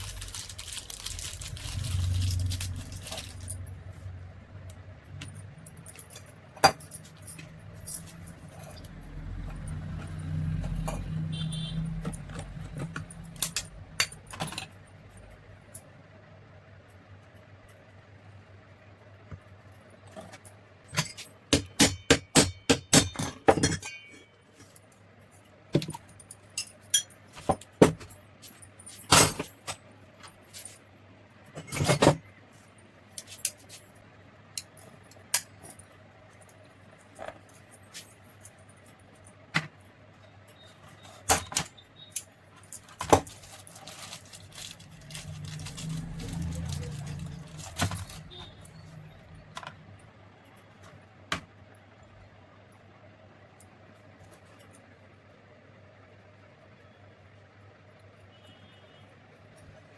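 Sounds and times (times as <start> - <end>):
metal parts clicking and clinking: 0.0 - 15.8, 20.0 - 30.8, 33.2 - 39.8, 40.4 - 49.8
tools tapping and knocking: 5.1 - 9.0, 12.0 - 14.8, 20.1 - 24.8, 25.7 - 28.2.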